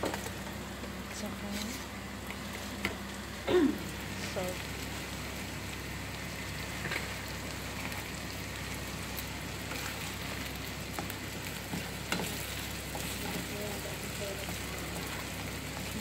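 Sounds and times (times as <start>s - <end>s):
eggs sizzling in a frying pan: 0.0s - 16.0s
spatula scraping and tapping: 11.7s - 13.5s.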